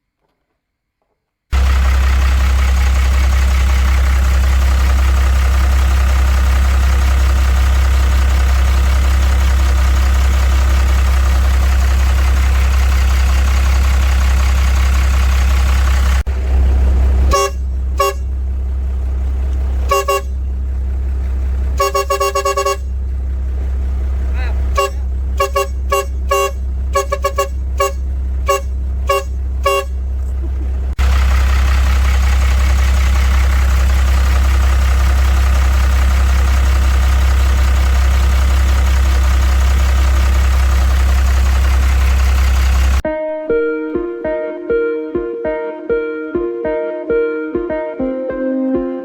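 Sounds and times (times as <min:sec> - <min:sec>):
truck engine humming: 0:01.5 - 0:43.0
truck horn honking: 0:13.5 - 0:21.0, 0:21.6 - 0:23.5, 0:24.1 - 0:31.1.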